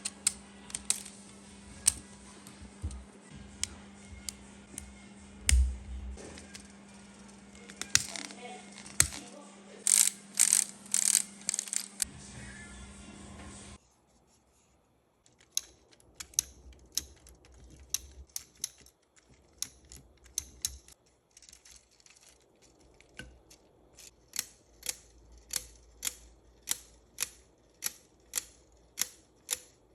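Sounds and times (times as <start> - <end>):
plastic escapement ticking: 15.4 - 21.0.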